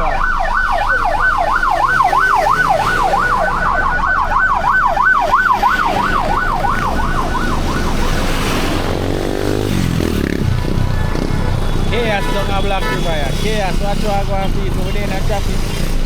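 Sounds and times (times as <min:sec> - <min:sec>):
emergency siren yelping: 0:00.0 - 0:09.1
traffic rumble: 0:00.0 - 0:16.0.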